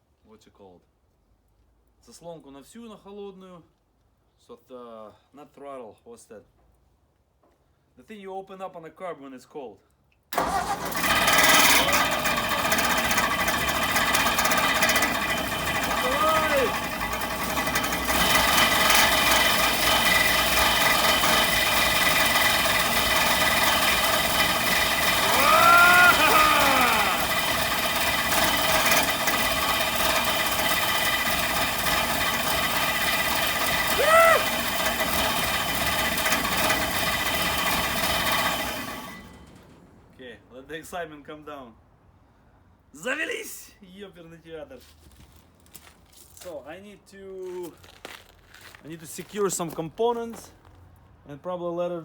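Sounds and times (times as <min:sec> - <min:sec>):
engine clattering: 0:10.4 - 0:40.1
loose components rattling: 0:11.0 - 0:39.7
person whooping: 0:15.9 - 0:16.8, 0:25.0 - 0:27.5, 0:33.9 - 0:34.6.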